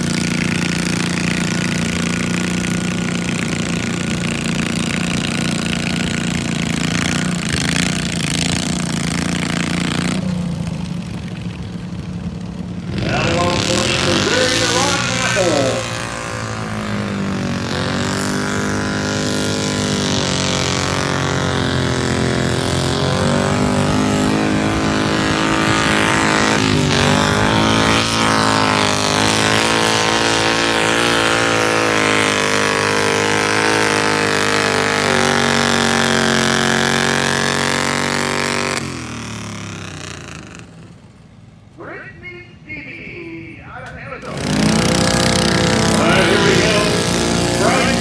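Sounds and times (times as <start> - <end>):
garden tractor engine under load: 0.0 - 43.0, 43.8 - 48.0.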